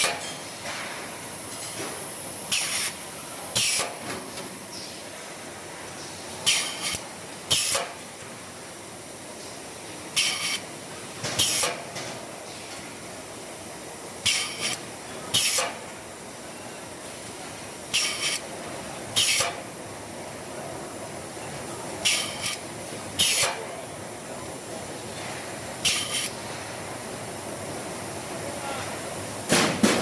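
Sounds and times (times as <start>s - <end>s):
machine shop background noise: 0.0s - 30.0s
compressed air hissing: 6.4s - 8.0s, 13.8s - 15.9s, 22.0s - 23.7s, 25.8s - 26.5s.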